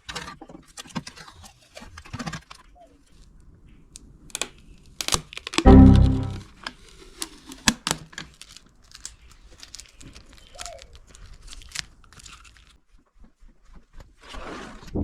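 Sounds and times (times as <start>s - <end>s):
small objects clicking and crinkling: 8.2s - 12.8s.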